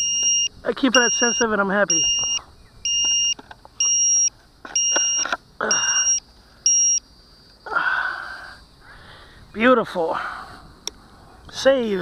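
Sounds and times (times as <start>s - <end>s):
electronic alarm two-tone beeps: 0.0s - 7.0s.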